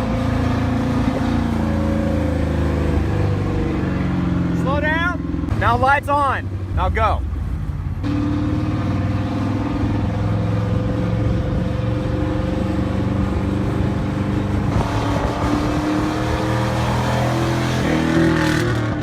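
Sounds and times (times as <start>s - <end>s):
vehicle engine running: 0.0s - 8.2s
road and wind noise rushing: 0.0s - 19.0s.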